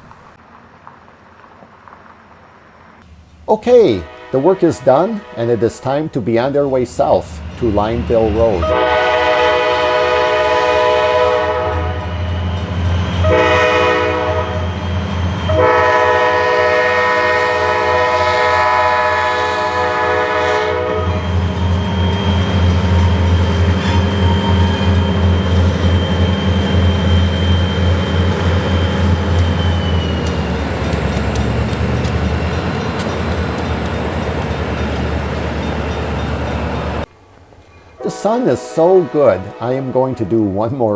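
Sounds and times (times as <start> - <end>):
diesel engine rumbling: 0.0 - 0.4, 3.0 - 9.8
locomotive air horn blasts: 3.0 - 12.2, 13.2 - 14.8, 15.5 - 22.4, 37.9 - 40.9.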